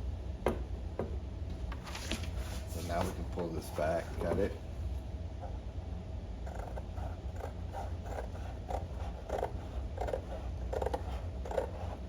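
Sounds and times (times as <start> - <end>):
scissors cutting paper: 6.5 - 11.8.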